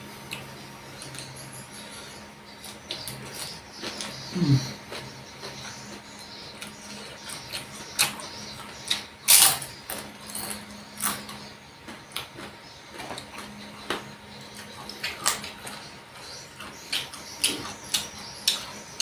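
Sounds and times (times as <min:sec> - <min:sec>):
person chewing: 0:02.9 - 0:14.0.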